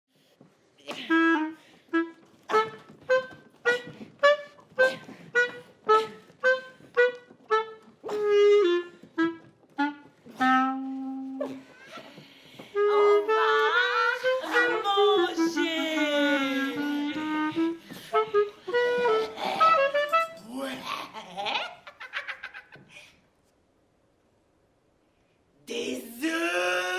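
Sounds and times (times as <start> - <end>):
wind instrument melody: 0.9 - 11.7, 12.7 - 20.5.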